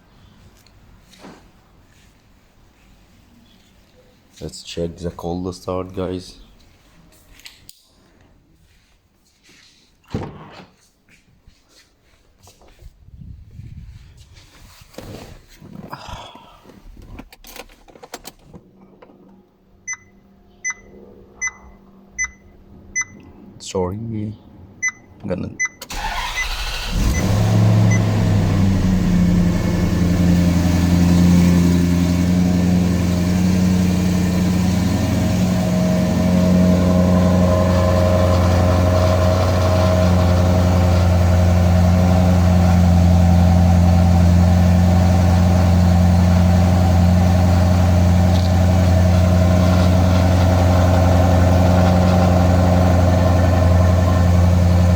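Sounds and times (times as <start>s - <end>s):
car engine starting and idling: 25.8s - 54.9s.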